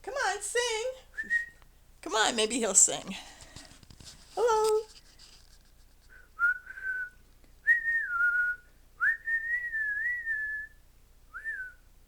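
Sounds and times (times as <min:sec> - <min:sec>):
person whistling single notes: 0:06.1 - 0:11.8.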